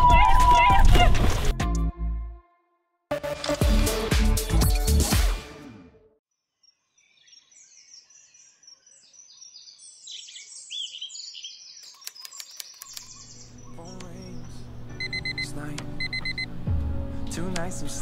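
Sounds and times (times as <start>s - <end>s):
background music: 1.5s - 6.2s, 13.7s - 18.0s
birds chirping: 6.6s - 16.5s
sharp clicks: 11.8s - 13.2s.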